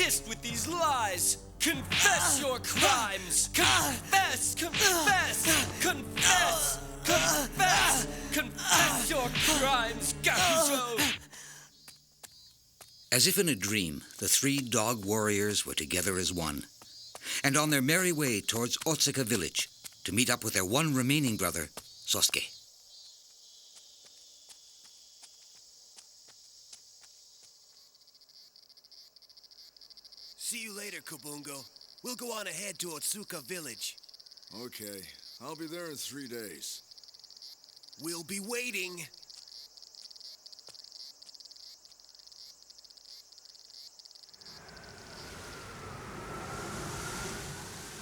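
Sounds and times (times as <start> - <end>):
insects chirring: 10.6 - 48.0
rushing hiss with whistle: 44.4 - 48.0.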